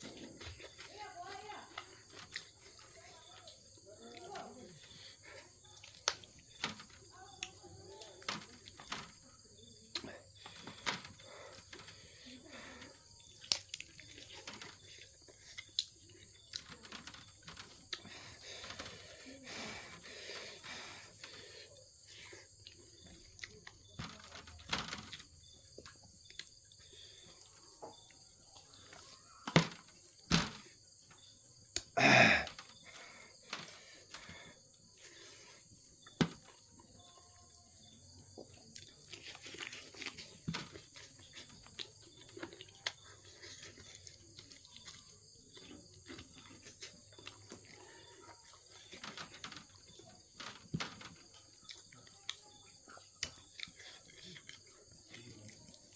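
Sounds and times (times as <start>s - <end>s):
chewing and mouth noises: 11.2s - 23.9s, 38.4s - 49.1s, 51.3s - 55.9s.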